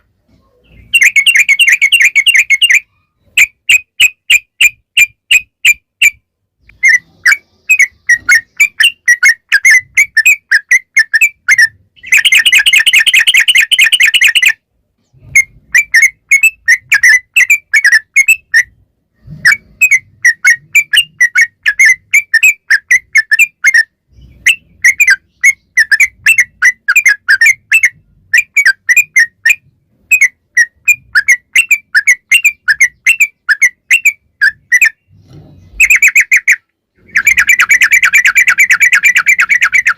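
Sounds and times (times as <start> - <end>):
bird bubbly chirping song: 6.7 - 14.6, 35.7 - 39.9.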